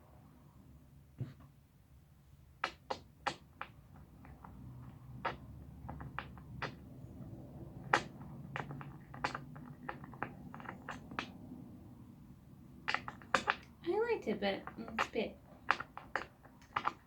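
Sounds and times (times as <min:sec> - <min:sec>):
chair parts clicking and knocking: 0:02.6 - 0:11.6, 0:12.7 - 0:13.8, 0:14.6 - 0:17.0.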